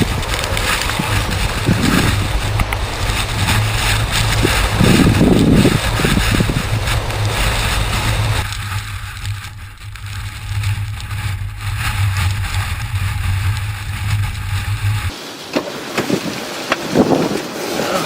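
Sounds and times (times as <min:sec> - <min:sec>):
car road and engine rumble: 0:00.0 - 0:18.0
wind hissing: 0:15.1 - 0:18.0.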